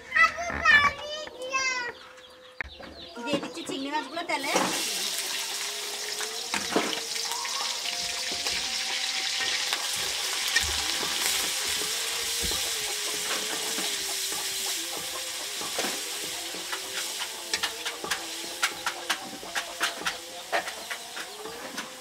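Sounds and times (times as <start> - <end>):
prawns sizzling in hot oil: 4.4 - 22.0
wooden spatula scraping a pan: 8.2 - 22.0.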